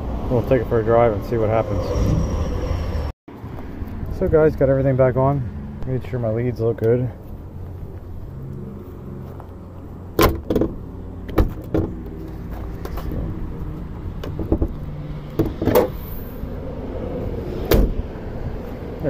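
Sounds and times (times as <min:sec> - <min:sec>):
sharp knocks and clunks: 0:10.2 - 0:12.1, 0:14.2 - 0:16.0.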